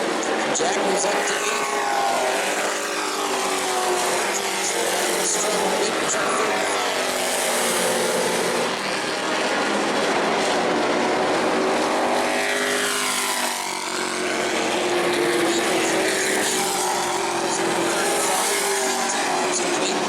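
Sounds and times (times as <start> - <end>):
race truck engines droning: 0.0 - 20.0.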